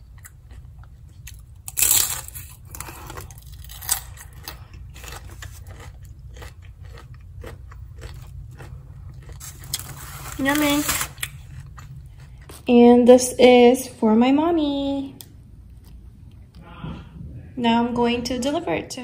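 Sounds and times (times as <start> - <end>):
crunchy chewing of fried food: 0.0 - 12.8
crisp bite: 1.2 - 12.6.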